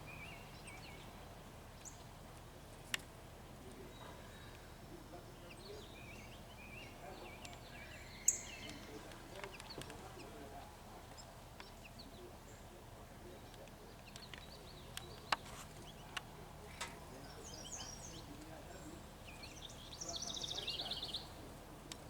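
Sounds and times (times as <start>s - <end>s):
small birds chirping: 0.0s - 22.0s
bird trill: 7.6s - 9.0s.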